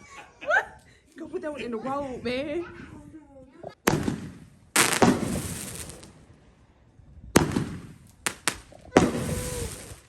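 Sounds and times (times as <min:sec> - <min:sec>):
sharp firework cracks: 0:03.8 - 0:06.3, 0:07.4 - 0:10.0
fireworks bangs: 0:03.8 - 0:06.4, 0:07.2 - 0:10.0.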